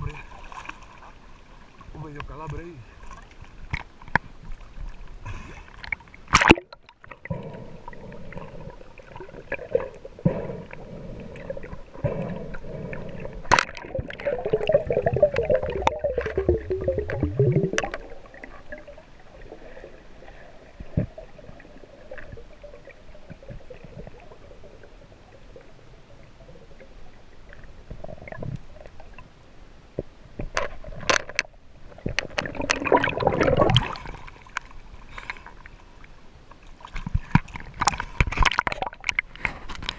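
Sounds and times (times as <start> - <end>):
sharp clicks underwater: 3.7 - 4.3, 5.8 - 7.6, 9.1 - 18.9, 30.0 - 35.6, 36.9 - 39.9
water gurgling and bubbling: 6.4 - 29.3, 31.8 - 34.6.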